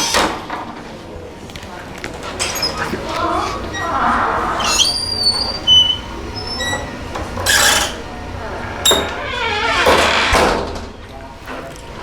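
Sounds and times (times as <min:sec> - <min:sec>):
voices chattering: 0:01.2 - 0:09.4
creaky door moving: 0:02.2 - 0:10.6.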